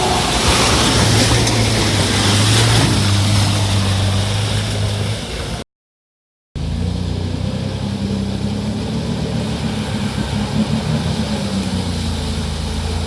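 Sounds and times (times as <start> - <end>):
vehicle engine humming at low revs: 6.6 - 13.0.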